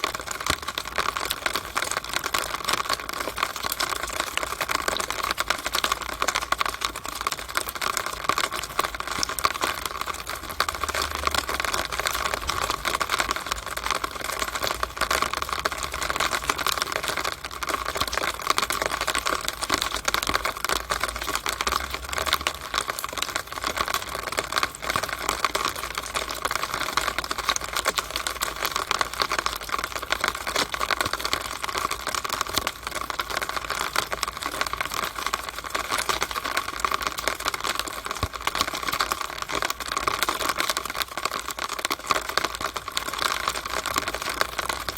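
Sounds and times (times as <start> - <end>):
rainwater running down a downspout: 0.0 - 44.9.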